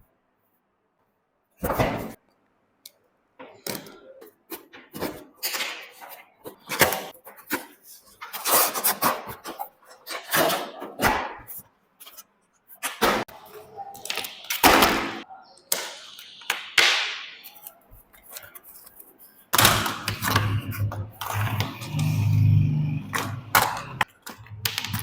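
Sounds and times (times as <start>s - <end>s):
plastic and cardboard rustling: 4.5s - 15.0s, 17.4s - 22.0s.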